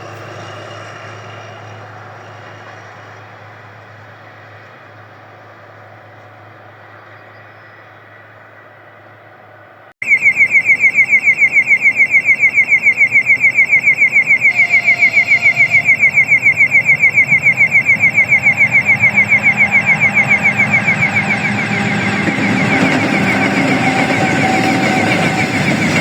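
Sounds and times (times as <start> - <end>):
level crossing electronic beeping: 10.0 - 26.0.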